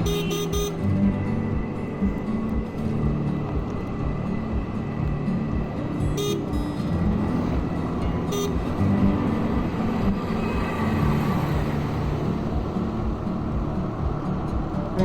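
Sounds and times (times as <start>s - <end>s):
vehicle horn toot: 0.0s - 0.9s, 6.2s - 6.5s, 8.3s - 8.6s
highway traffic: 0.0s - 15.0s.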